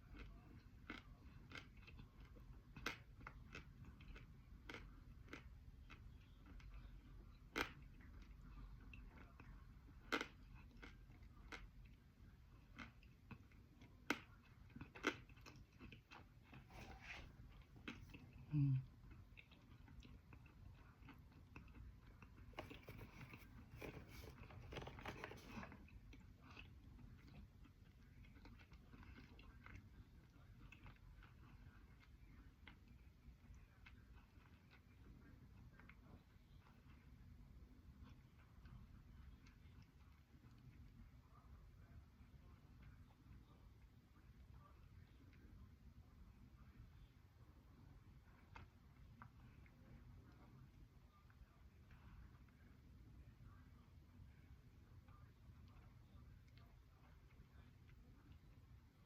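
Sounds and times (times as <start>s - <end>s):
crunchy chewing: 0.0s - 37.2s.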